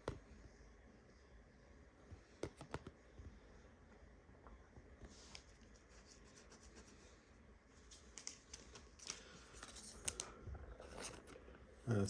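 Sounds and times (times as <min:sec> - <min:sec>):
trading cards clicking and rustling: 0:07.9 - 0:11.4.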